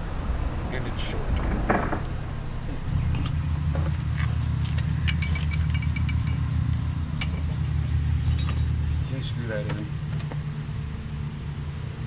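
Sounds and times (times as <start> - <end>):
low engine drone: 0.0 - 12.0
metal tools clinking: 4.2 - 8.8.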